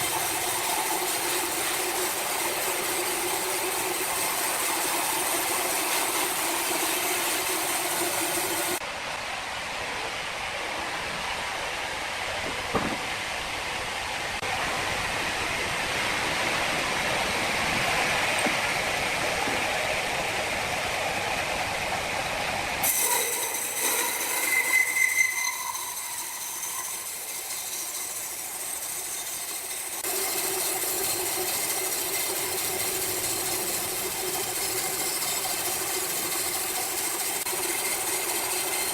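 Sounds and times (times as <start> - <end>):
sawmill machine hum: 0.0 - 38.9
high machine squeal: 22.8 - 38.9.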